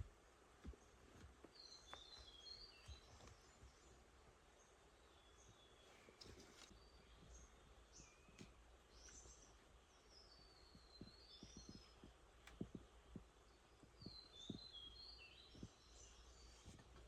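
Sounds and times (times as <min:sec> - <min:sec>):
faint birdsong: 0:00.0 - 0:17.0
soft low taps: 0:10.6 - 0:16.0.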